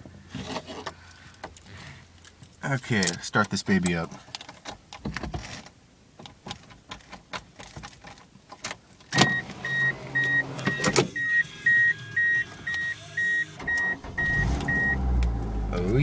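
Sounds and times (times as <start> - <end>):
car starter cranking: 9.2 - 16.0
dashboard warning chime beeping: 9.2 - 16.0.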